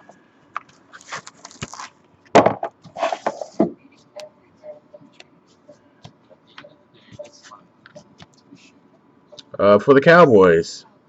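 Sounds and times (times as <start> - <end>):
plastic packaging rustling: 0.6 - 2.1.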